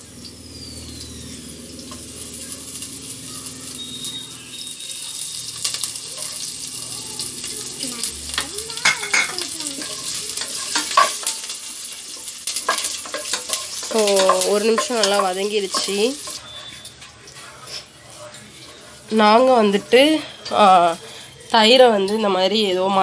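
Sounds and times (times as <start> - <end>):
spices sizzling in hot oil: 0.0 - 23.0
spatula scraping pan: 3.8 - 21.4.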